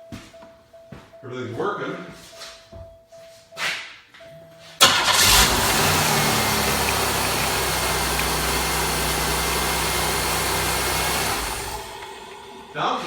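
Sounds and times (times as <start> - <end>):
car engine starting and idling: 4.8 - 13.0.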